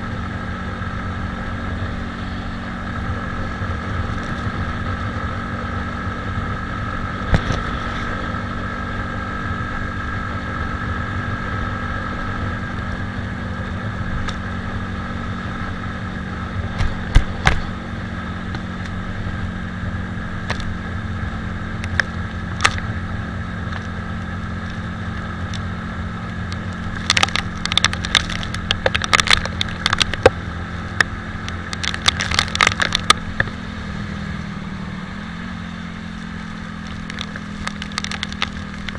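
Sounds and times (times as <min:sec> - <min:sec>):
motorcycle engine running: 0:00.0 - 0:38.9
wind and road noise: 0:00.0 - 0:38.9
sharp ticks and clicks: 0:21.8 - 0:22.9, 0:24.6 - 0:33.6, 0:36.6 - 0:38.9.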